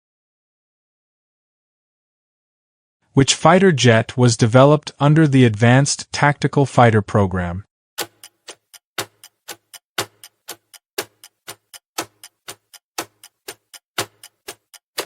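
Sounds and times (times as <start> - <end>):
clock-style ticking: 8.0 - 15.0.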